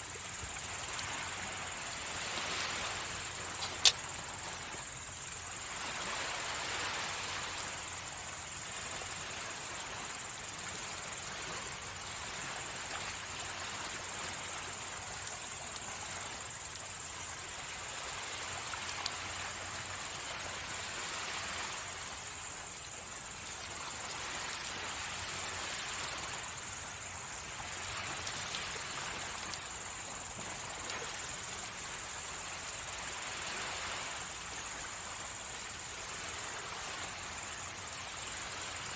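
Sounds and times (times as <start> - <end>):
campfire crackling: 0.0 - 13.5, 22.0 - 35.6
sea waves washing on shore: 0.0 - 38.9.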